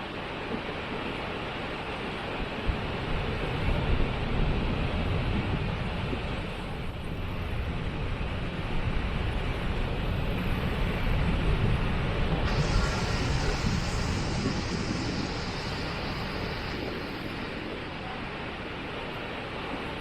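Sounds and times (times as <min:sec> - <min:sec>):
waterfall rushing: 0:12.4 - 0:19.5.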